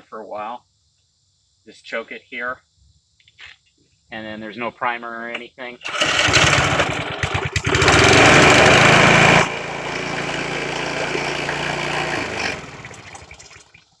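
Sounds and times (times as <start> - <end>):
small mower engine running: 5.8 - 13.7.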